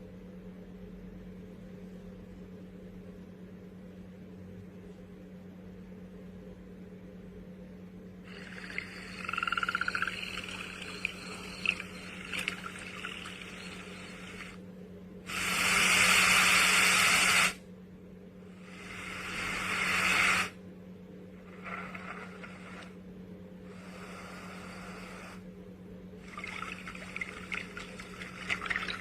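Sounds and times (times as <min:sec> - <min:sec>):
steady low hum: 0:00.0 - 0:29.0
white noise hiss: 0:08.2 - 0:29.0.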